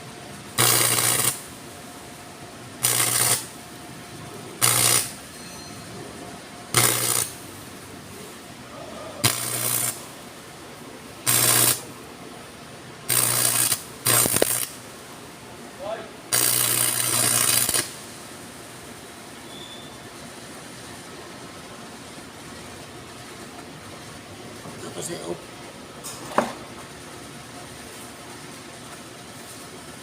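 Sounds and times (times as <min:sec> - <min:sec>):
welding arc crackling sizzle: 0:00.0 - 0:05.3, 0:06.1 - 0:08.4, 0:09.2 - 0:12.1, 0:13.0 - 0:15.0, 0:15.8 - 0:19.1.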